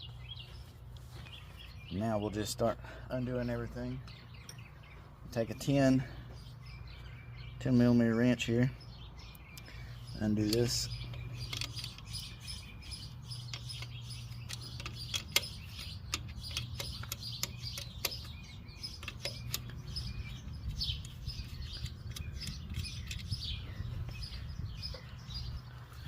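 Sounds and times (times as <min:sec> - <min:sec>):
birds chirping: 0:00.0 - 0:26.0
wrench clicking on metal: 0:10.4 - 0:12.4, 0:13.3 - 0:19.9, 0:21.8 - 0:23.4.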